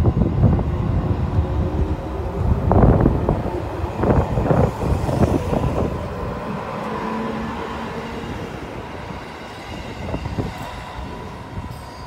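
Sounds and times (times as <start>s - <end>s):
train humming tone: 0.0s - 12.0s
train wheels rumbling on rail: 0.0s - 12.0s.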